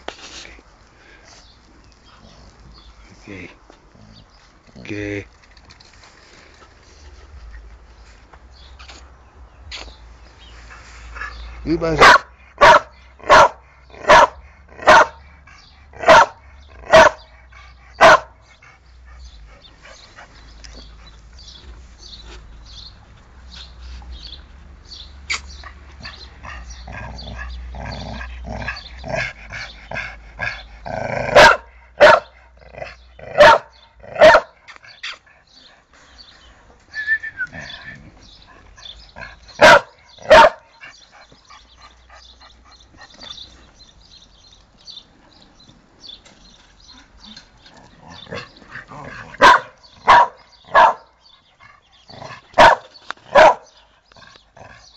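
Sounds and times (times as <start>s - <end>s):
dog barking: 12.0s - 15.2s, 16.0s - 17.3s, 18.0s - 18.4s, 31.3s - 32.4s, 33.3s - 34.6s, 39.6s - 40.7s, 49.2s - 51.2s, 52.6s - 53.8s.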